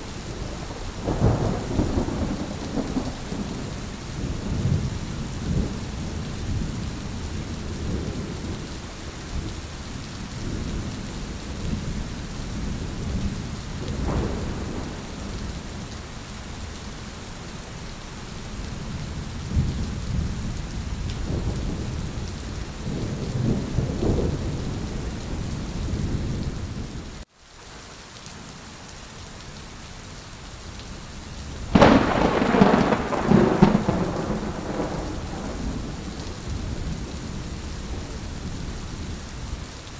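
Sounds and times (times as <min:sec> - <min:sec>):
low rolling thunder: 0:00.0 - 0:09.7, 0:10.4 - 0:16.5, 0:18.8 - 0:27.1, 0:31.5 - 0:39.7
steady rain: 0:00.0 - 0:39.9
sharp thunderclap: 0:00.5 - 0:06.6, 0:13.8 - 0:15.6, 0:31.7 - 0:38.2.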